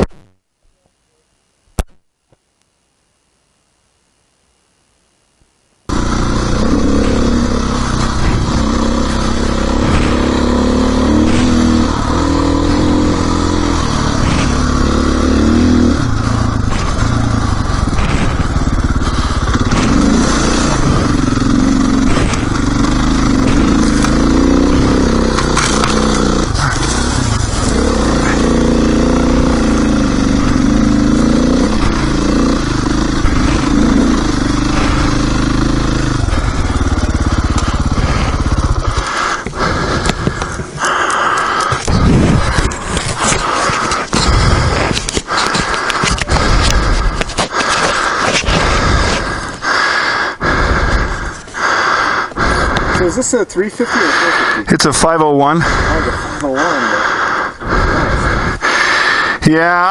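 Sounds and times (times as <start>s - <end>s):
dirt bike engine revving: 5.9s - 59.9s
clicks and scrapes: 41.6s - 49.2s.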